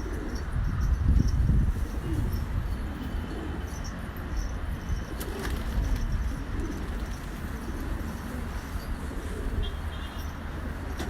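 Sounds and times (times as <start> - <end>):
pigeons cooing: 0.0 - 0.9, 1.7 - 4.0, 5.0 - 9.9.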